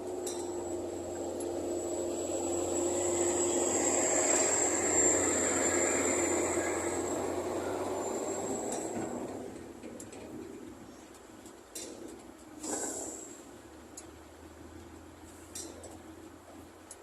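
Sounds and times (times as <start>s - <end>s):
construction vehicle motor whining: 0.0s - 10.3s.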